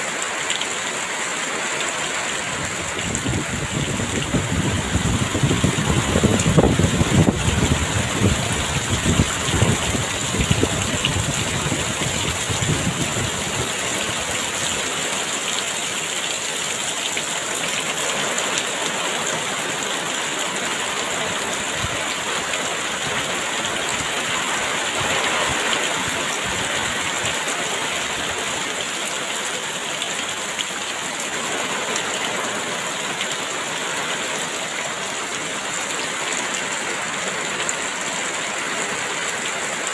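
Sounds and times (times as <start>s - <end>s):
heavy rain pouring: 0.0s - 39.9s
gust of wind: 2.6s - 13.7s.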